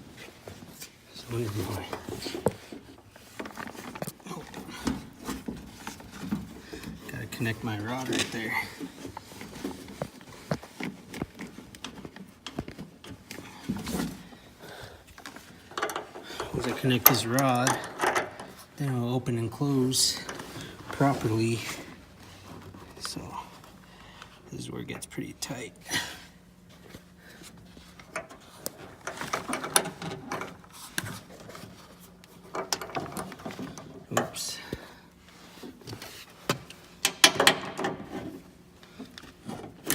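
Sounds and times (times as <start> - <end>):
small metal clicks and rattles: 15.2 - 18.6.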